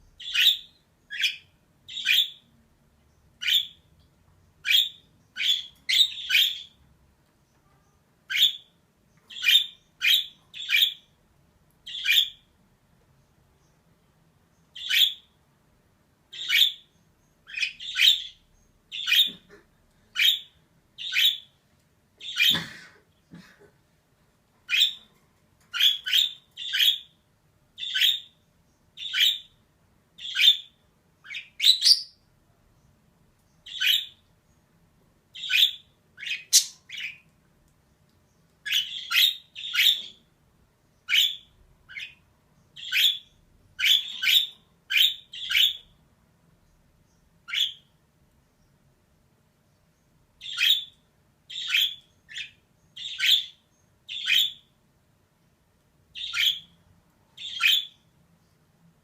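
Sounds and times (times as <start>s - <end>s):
budgerigar chirping: 0.2s - 2.5s, 3.4s - 3.9s, 4.6s - 6.8s, 8.3s - 8.7s, 9.3s - 11.1s, 11.9s - 12.5s, 14.7s - 15.3s, 16.3s - 21.6s, 22.2s - 22.6s, 24.7s - 25.1s, 25.7s - 27.2s, 27.8s - 28.4s, 29.0s - 29.6s, 30.2s - 32.2s, 33.6s - 34.2s, 35.3s - 37.2s, 38.6s - 40.3s, 41.0s - 42.2s, 42.8s - 45.9s, 47.4s - 47.9s, 50.4s - 54.7s, 56.1s - 56.8s, 57.4s - 58.0s.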